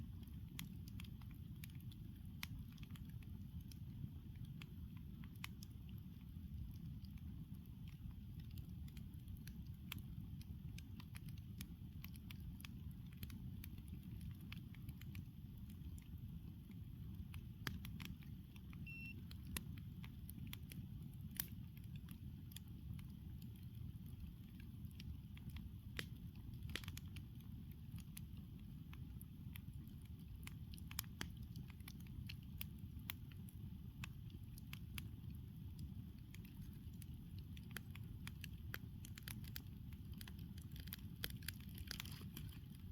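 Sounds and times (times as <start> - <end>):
campfire crackling and popping: 0.0 - 42.9
low fire rumble: 0.0 - 42.9.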